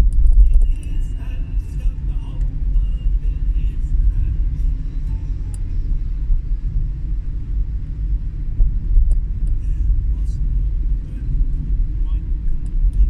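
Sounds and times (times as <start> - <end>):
vehicle road and engine rumble: 0.0 - 13.0.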